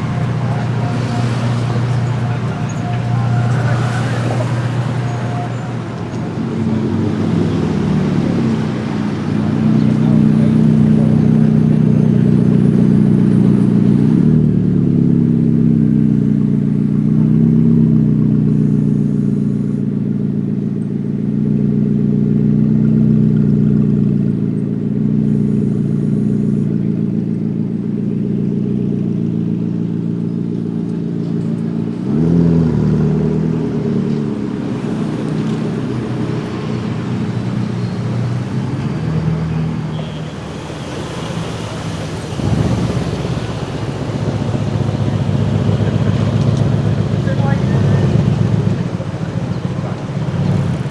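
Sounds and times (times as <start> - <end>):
car engine running: 0.0 - 50.9
engine rev blip: 32.4 - 50.9.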